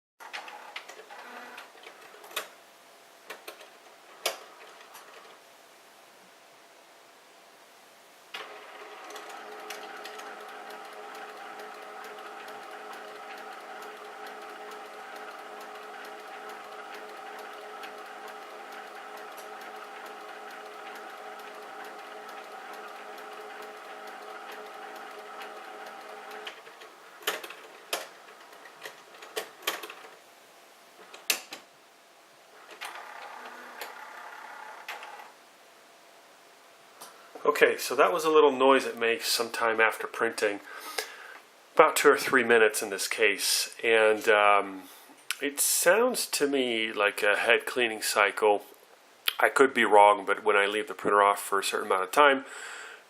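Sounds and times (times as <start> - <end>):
printer mechanism whirring: 0.2 - 2.5, 8.4 - 30.2, 32.5 - 35.4
printer ticks: 8.4 - 29.8.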